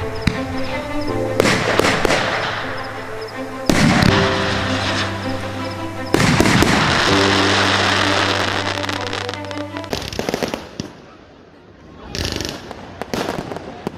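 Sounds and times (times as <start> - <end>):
background music: 0.0 - 10.3
fireworks bangs and crackling: 1.3 - 2.8, 3.7 - 11.1, 12.1 - 13.9.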